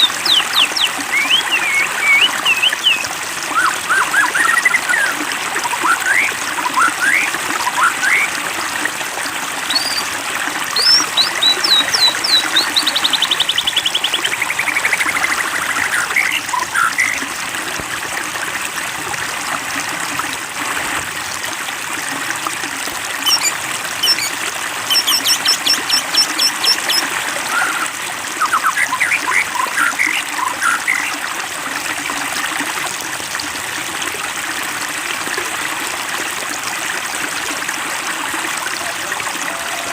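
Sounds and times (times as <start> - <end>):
songbird singing: 0.0 - 3.0, 10.8 - 17.2, 23.2 - 24.3, 24.9 - 27.0
water trickling: 0.0 - 39.9.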